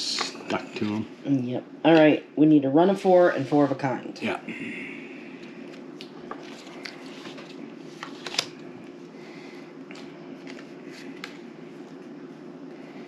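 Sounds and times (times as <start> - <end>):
playing cards clicking: 6.4 - 8.6, 9.9 - 11.4.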